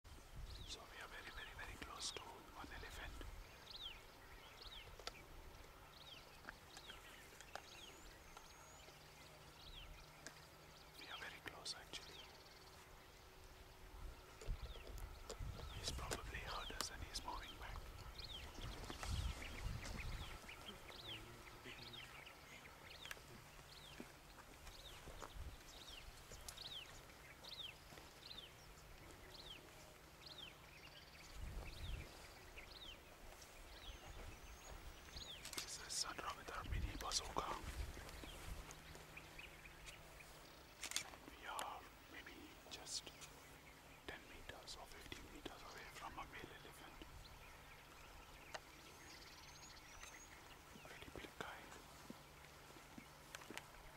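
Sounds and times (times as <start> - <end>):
faint clicks: 4.7 - 5.7, 6.3 - 9.0, 14.3 - 19.1, 22.9 - 30.1, 35.0 - 39.0, 40.6 - 43.4.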